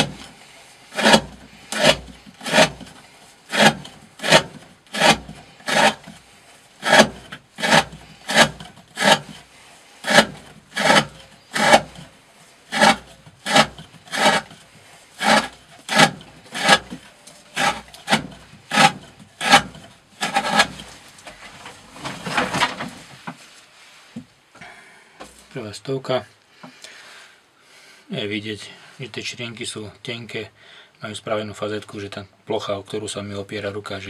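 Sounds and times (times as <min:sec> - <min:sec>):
knife slicing rope: 0:00.9 - 0:06.2, 0:06.8 - 0:09.4, 0:10.0 - 0:12.0, 0:12.7 - 0:14.6, 0:15.2 - 0:17.0, 0:17.6 - 0:21.0.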